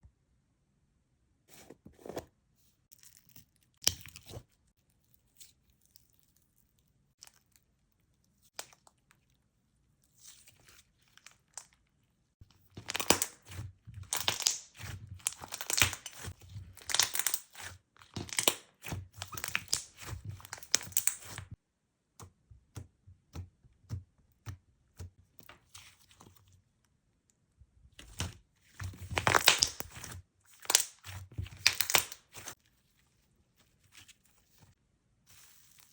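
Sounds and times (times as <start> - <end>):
slime squishing with clicks and pops: 12.7 - 25.4.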